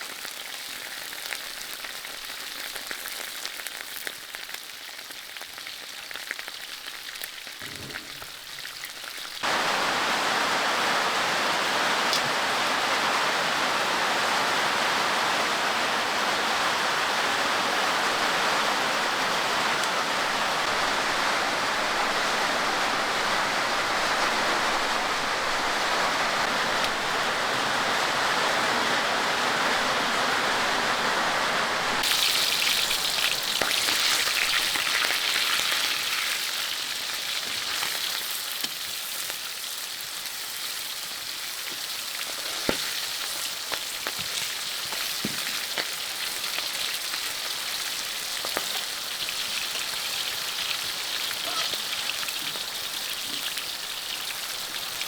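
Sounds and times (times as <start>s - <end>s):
food frying in a pan: 0.0s - 9.6s, 32.0s - 55.0s
heavy rain: 9.4s - 35.8s, 42.4s - 55.0s.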